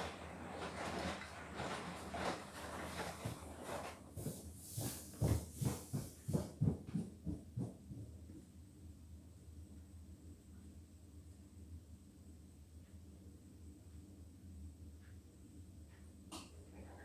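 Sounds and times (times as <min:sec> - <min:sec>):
washing machine drum sloshing laundry: 0:00.0 - 0:08.2.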